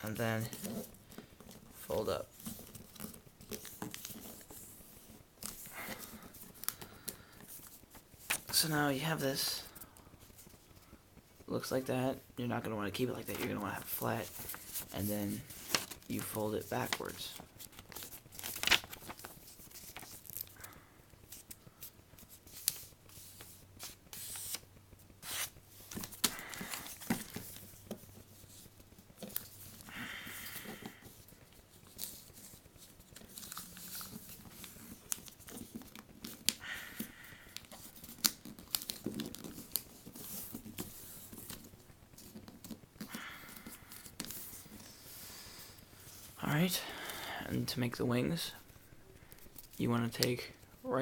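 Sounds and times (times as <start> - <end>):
paper crinkling and rustling: 0.0 - 8.9, 12.9 - 46.7
sharp paper crackles and taps: 15.5 - 29.8, 30.4 - 44.8.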